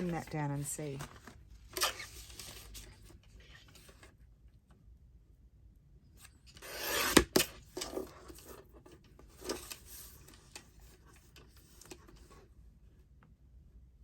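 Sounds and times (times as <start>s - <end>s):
paper sliding and rustling: 0.0s - 4.2s.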